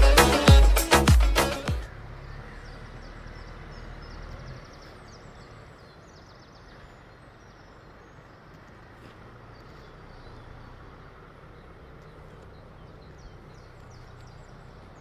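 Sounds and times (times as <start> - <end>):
music track: 0.0 - 1.9.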